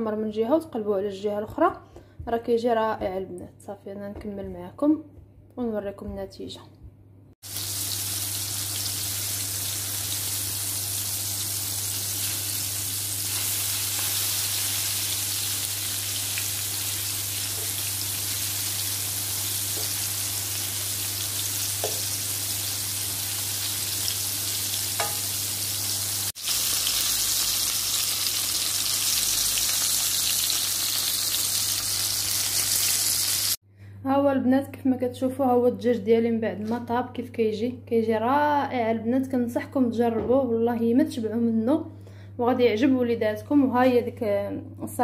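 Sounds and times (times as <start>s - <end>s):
chicken sizzling in frying pan: 7.4s - 33.6s.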